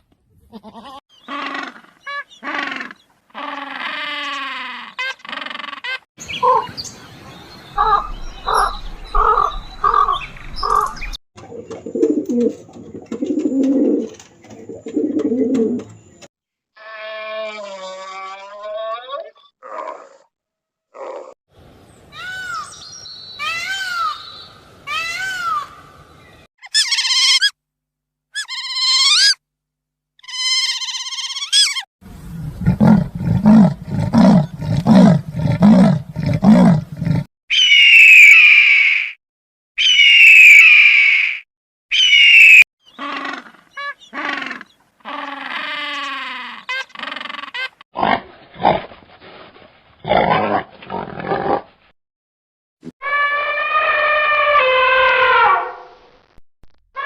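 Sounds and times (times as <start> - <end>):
high arching animal calls: 0.7 - 6.9, 7.8 - 11.2, 28.4 - 29.4, 30.2 - 39.2, 39.8 - 47.8, 53.0 - 55.8
long shrill animal calls: 26.6 - 27.6, 28.4 - 29.4, 30.2 - 31.9, 37.5 - 39.2, 39.8 - 47.8, 53.0 - 55.8
deep rhythmic grunts or roars: 32.2 - 37.3.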